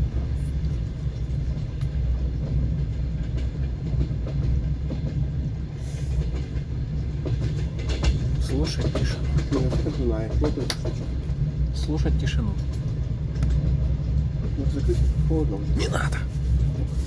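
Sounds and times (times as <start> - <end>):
train wheels rumbling on rails: 0.0 - 17.0
wheels clacking over rail joints: 6.1 - 11.5.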